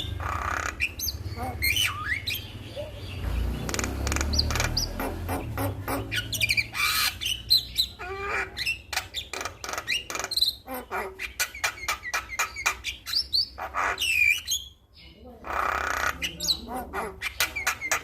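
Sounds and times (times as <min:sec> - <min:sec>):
bird singing harsh clicks and whistles: 0:03.4 - 0:05.0, 0:08.6 - 0:10.6.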